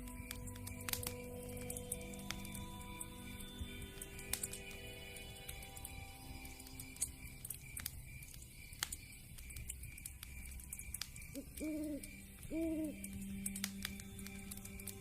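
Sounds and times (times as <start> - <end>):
soft steady drone: 0.0 - 15.0
wood fire crackling: 0.0 - 15.0
owl hooting: 11.3 - 13.1.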